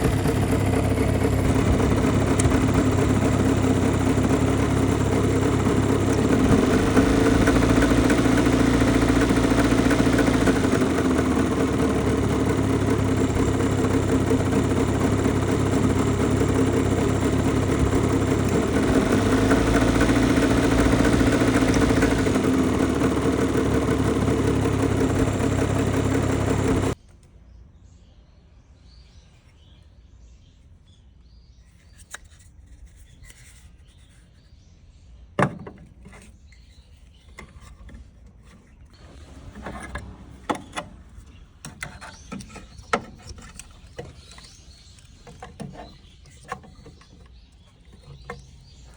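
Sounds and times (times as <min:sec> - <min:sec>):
faint engine ticks: 0:00.0 - 0:27.0
small engine idling: 0:00.0 - 0:27.0, 0:38.9 - 0:48.9.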